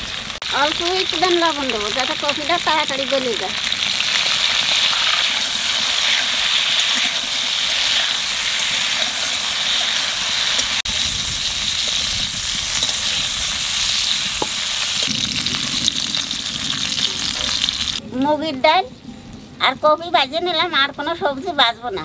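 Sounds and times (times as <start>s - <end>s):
vegetables sizzling in hot oil: 0.0s - 18.0s
spoon stirring in metal pan: 4.2s - 10.7s.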